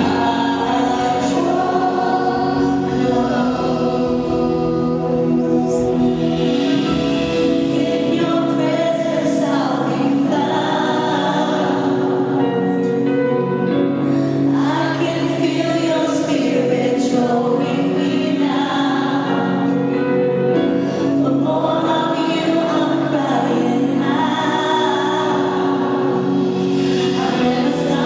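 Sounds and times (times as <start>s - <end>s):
many voices singing together: 0.0s - 13.0s, 14.5s - 19.9s, 21.2s - 28.0s
band playing: 0.0s - 15.2s.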